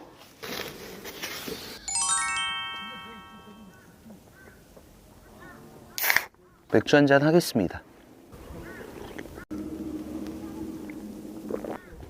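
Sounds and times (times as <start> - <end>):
electronic chime ding: 1.8 - 3.8.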